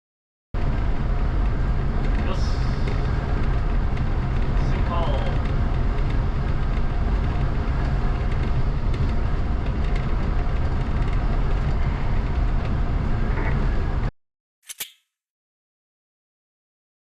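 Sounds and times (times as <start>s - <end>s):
train rumbling on rails: 0.6s - 14.1s.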